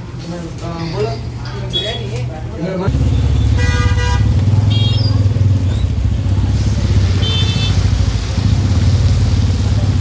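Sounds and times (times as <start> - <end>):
city traffic: 0.0 - 10.0
motorcycle engine rumbling: 2.9 - 10.0
vehicle horn toots: 3.4 - 5.2, 7.2 - 7.8.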